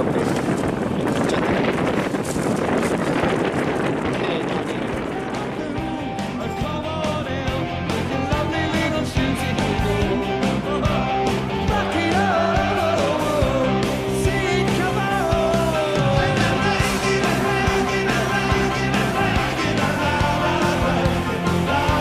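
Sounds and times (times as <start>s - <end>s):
rock music with singing: 4.7s - 22.0s.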